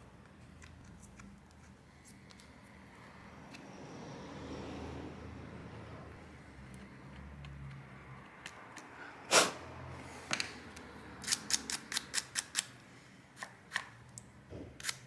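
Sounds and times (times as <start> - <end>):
screwdriver clicking and scraping glass: 11.2 - 12.7.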